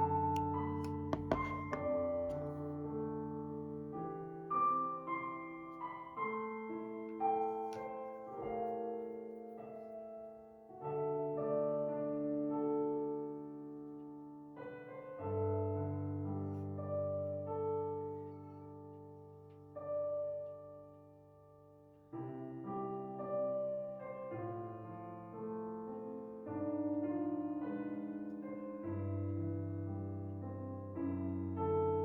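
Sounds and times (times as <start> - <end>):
slow piano music: 0.0 - 32.0.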